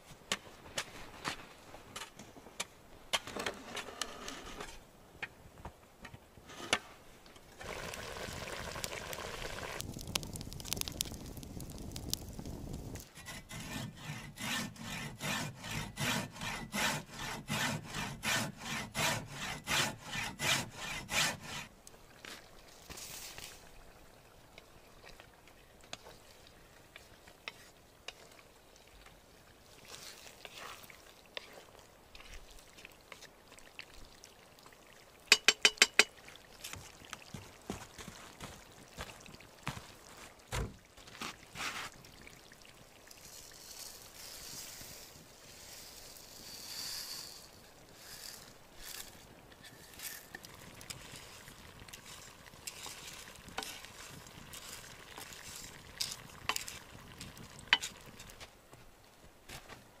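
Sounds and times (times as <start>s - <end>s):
spoon stirring meat in pot: 35.3s - 36.1s, 51.7s - 58.4s
dry rice poured into pot: 43.2s - 58.0s.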